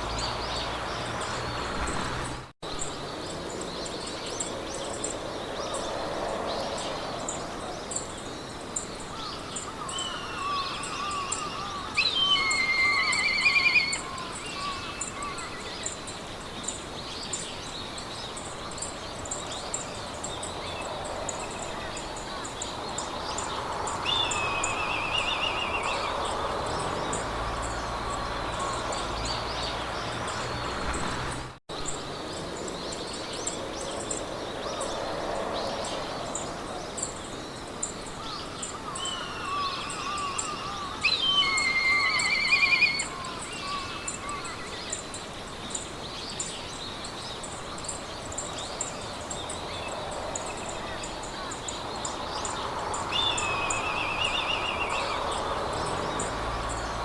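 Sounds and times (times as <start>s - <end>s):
wind through grass: 0.0s - 57.0s
birds singing trilled phrases: 9.3s - 16.0s, 38.2s - 45.1s.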